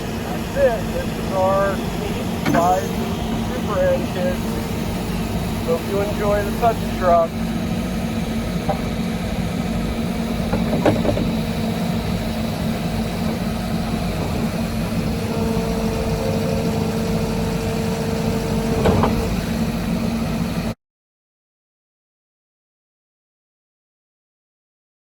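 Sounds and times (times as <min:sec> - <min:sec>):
diesel engine idling: 0:00.0 - 0:20.8
faint steady whine: 0:00.0 - 0:20.8
knocks: 0:10.5 - 0:11.4.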